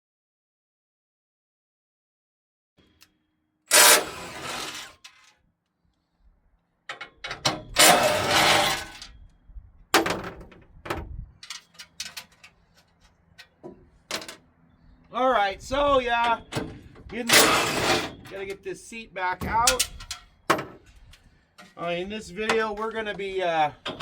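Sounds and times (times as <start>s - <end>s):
metal tools clattering and scraping: 3.7s - 5.3s, 6.9s - 9.3s, 11.4s - 14.5s, 15.8s - 18.7s, 19.4s - 24.0s.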